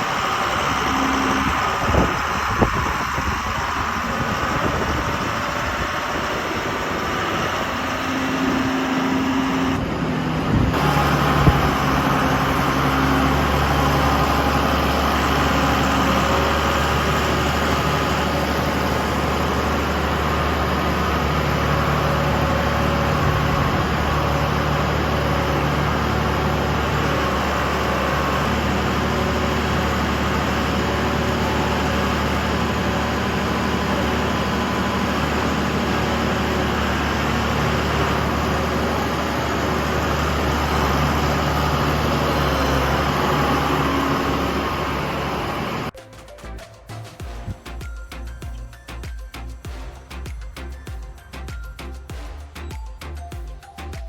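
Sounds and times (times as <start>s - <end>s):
engine humming steadily: 0.0s - 46.0s, 47.0s - 54.0s.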